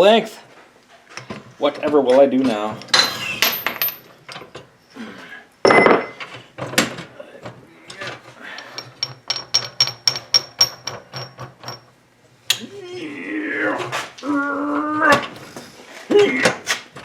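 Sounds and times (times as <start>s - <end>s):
metal parts knocking and clattering: 7.9s - 11.9s.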